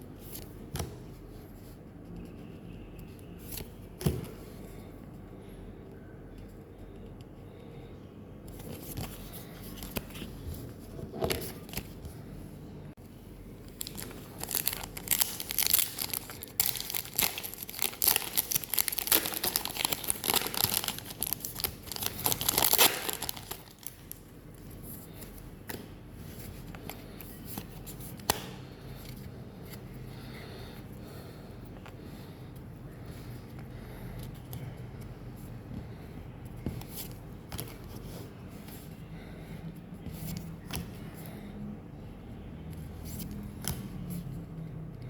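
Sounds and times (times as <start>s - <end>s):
plastic foil wrapper tearing and crinkling: 13.8s - 24.2s.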